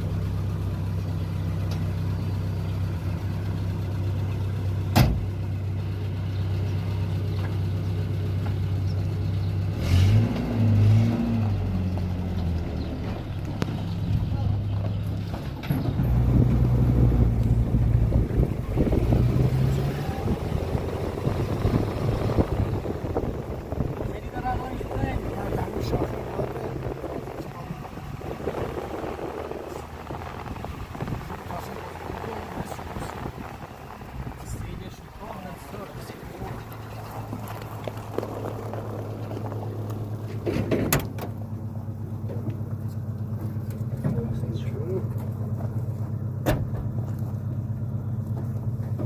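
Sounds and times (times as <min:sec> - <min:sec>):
engine humming: 0:00.0 - 0:49.0
rough wind-like noise: 0:15.8 - 0:35.5
clatter of knocks: 0:40.3 - 0:41.4.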